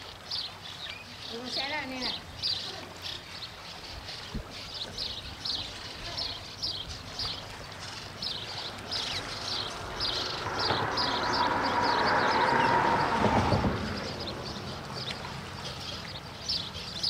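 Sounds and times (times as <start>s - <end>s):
engine hum: 6.5s - 17.0s.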